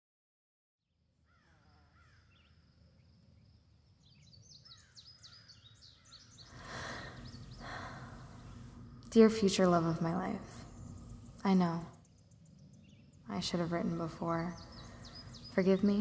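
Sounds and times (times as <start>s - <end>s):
birds chirping: 3.9s - 16.0s
soft rush of noise: 6.5s - 11.8s.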